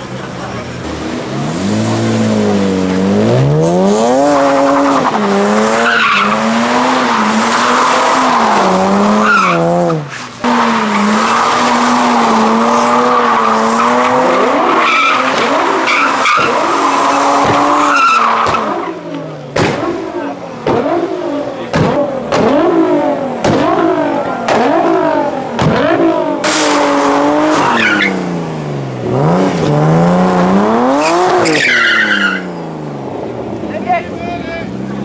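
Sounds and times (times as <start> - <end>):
car engine revving: 0.0 - 35.0
tyres squealing: 4.1 - 19.1, 26.4 - 28.4, 30.8 - 32.7.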